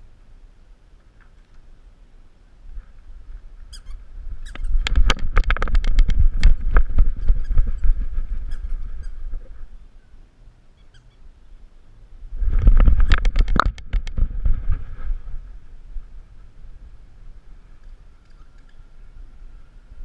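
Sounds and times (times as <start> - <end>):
faint high squeak: 3.6 - 5.1, 7.1 - 11.3, 17.6 - 19.9.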